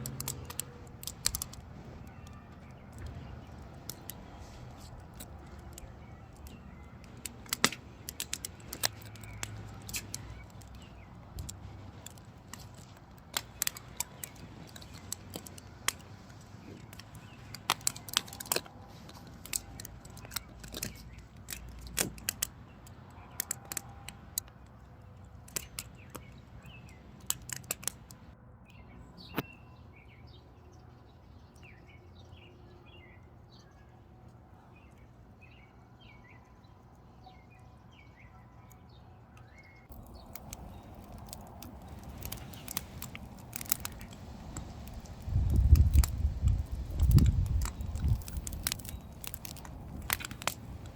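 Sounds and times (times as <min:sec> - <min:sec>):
small bird chirping: 0:00.0 - 0:21.9, 0:28.7 - 0:50.9
firewood crackling and popping: 0:00.0 - 0:28.4, 0:39.4 - 0:50.9.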